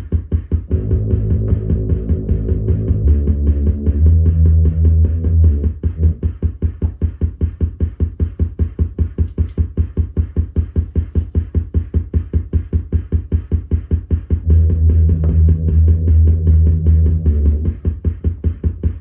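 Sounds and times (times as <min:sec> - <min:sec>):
drum machine beats: 0:00.0 - 0:19.0
pulsing synth bass: 0:00.6 - 0:06.4, 0:14.4 - 0:18.8
held deep bass note: 0:00.7 - 0:06.2, 0:14.4 - 0:17.7.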